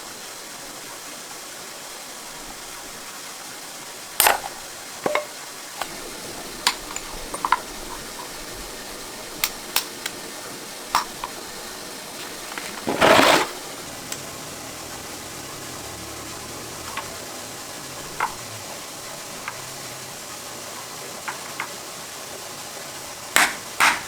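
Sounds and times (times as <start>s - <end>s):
steady hiss: 0.0s - 24.0s
clinks and knocks of hard objects: 4.2s - 14.3s.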